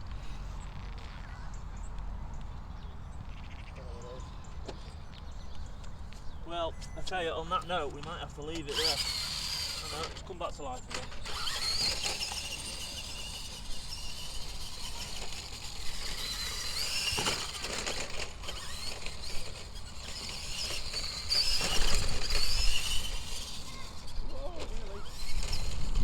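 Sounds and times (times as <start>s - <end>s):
toy truck motor whine: 6.8s - 26.0s.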